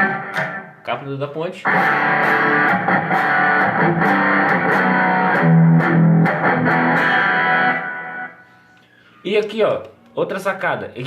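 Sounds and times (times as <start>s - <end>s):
electric guitar picked notes: 0.0s - 0.8s, 1.6s - 8.5s.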